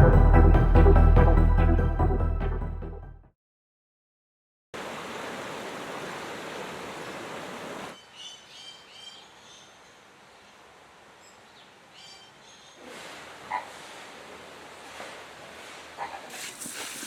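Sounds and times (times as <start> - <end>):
rushing floodwater: 4.8 - 8.0, 12.8 - 17.0.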